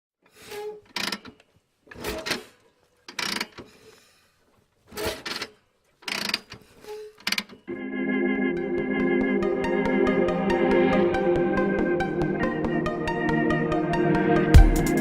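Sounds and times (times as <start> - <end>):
mechanical clacks: 0.3 - 4.0, 4.9 - 7.7.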